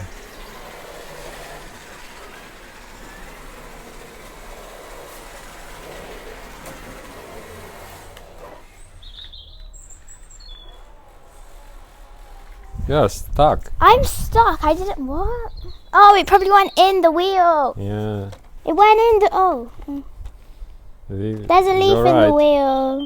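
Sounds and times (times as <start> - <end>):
toy car motor whirring: 0.0 - 20.6, 21.5 - 23.0
bird chirps: 8.7 - 11.1, 15.2 - 17.2, 21.6 - 23.0.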